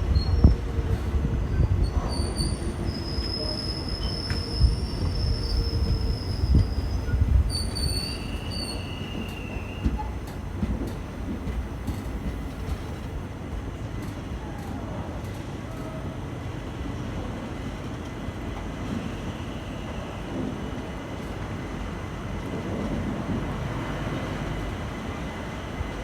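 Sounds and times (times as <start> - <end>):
train rumbling on rails: 0.0 - 26.0
wheel squeal: 1.8 - 13.2.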